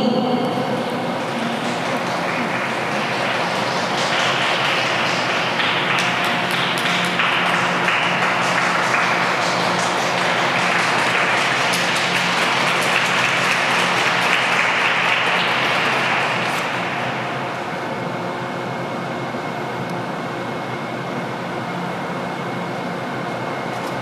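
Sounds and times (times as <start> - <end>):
audience applauding: 0.0 - 18.1.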